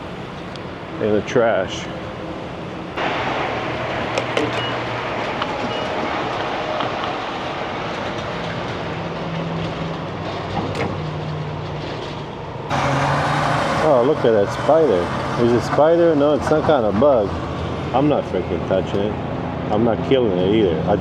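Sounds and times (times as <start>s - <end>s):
engine and traffic noise: 0.0s - 21.0s.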